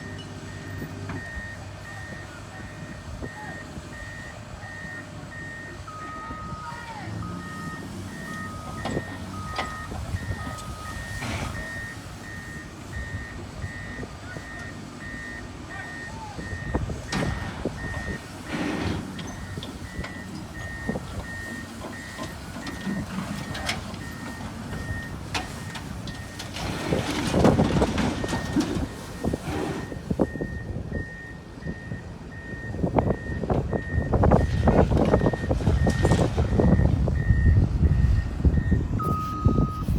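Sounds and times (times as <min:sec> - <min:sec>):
heavy vehicle engine running: 0:00.0 - 0:39.9
backup alarm beeping: 0:00.5 - 0:18.2, 0:19.3 - 0:27.0, 0:27.6 - 0:39.9
knocks and clanks: 0:17.1 - 0:29.4.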